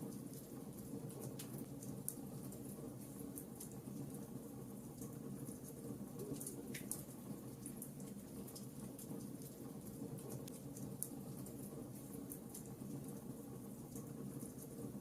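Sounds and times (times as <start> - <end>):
fire crackling and popping: 6.4 - 12.8.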